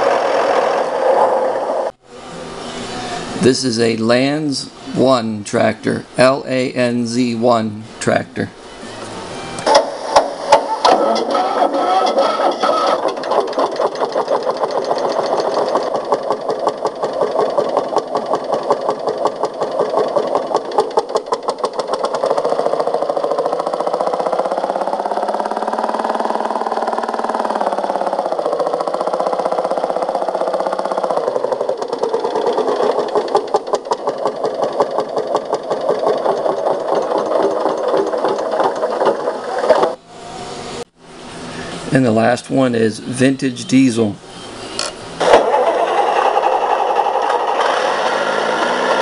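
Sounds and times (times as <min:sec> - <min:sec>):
tractor engine knocking: 0:09.7 - 0:40.0.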